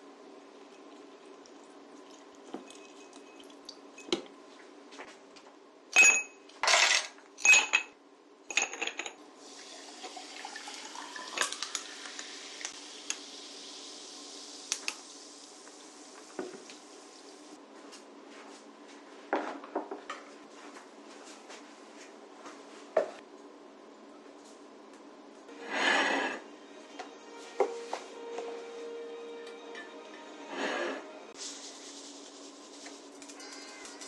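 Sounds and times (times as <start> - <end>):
dishes and cutlery clattering: 6.0 - 9.2
tap running water: 9.4 - 17.5.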